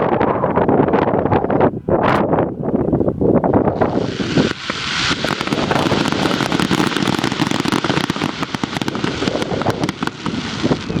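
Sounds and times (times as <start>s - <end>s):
fireworks crackling pops: 3.6s - 11.0s.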